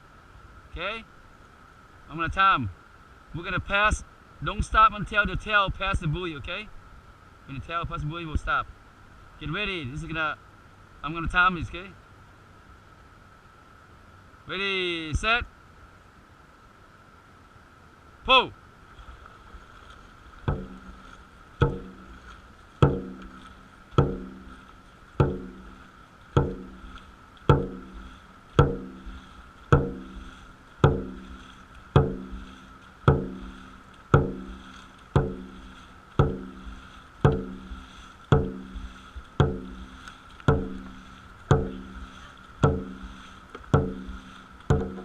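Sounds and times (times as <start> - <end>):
drum beaten in steady rhythm: 20.5 - 21.0, 21.6 - 22.2, 22.8 - 25.8, 26.4 - 45.0.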